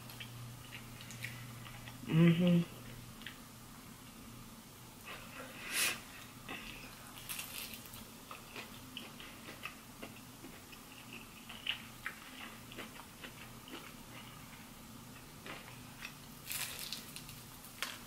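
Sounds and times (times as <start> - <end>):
person chewing crunchy food: 6.5 - 18.0.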